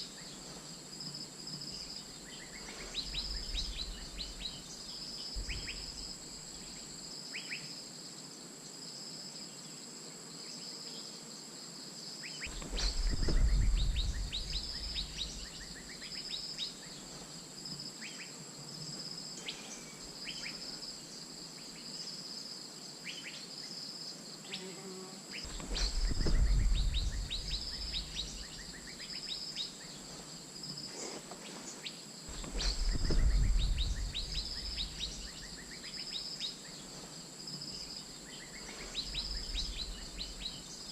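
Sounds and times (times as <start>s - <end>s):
insects droning: 0.0s - 40.9s
low rumble: 12.5s - 15.8s, 25.5s - 28.6s, 32.4s - 35.4s.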